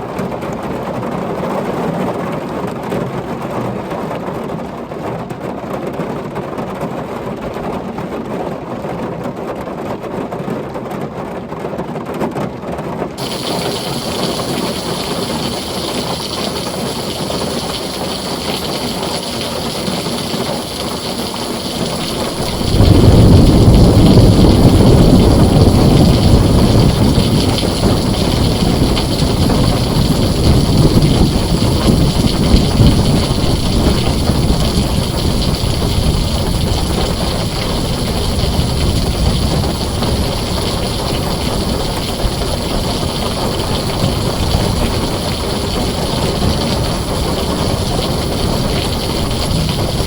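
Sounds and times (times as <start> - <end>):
heavy rain on a tin roof: 0.0 - 50.0
deep thunder rumble: 13.2 - 50.0.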